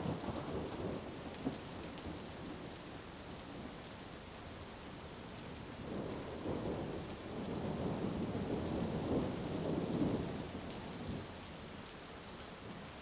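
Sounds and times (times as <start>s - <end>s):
heavy rain: 0.0s - 13.0s
thunder rumbling: 5.8s - 11.2s.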